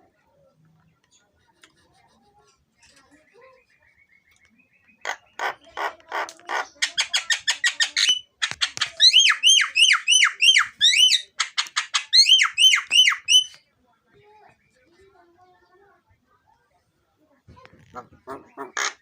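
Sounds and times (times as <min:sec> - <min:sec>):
myna rapid clicks: 0:05.4 - 0:09.3.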